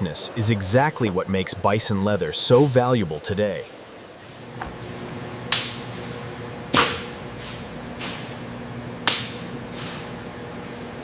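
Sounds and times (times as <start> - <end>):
steady low hum: 0.0 - 11.0
sharp cracking strikes: 5.5 - 5.9, 6.7 - 7.2, 9.0 - 9.5.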